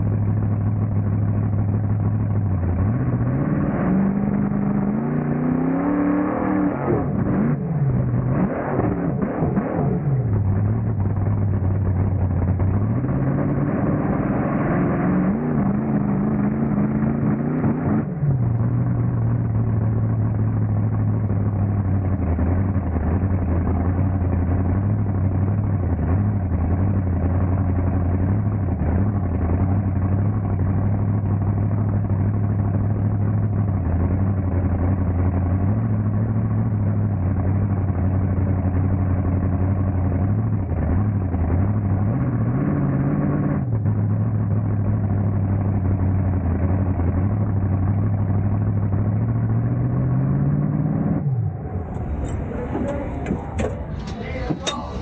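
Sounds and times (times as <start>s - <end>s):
monster truck engine revving: 0.0s - 55.0s.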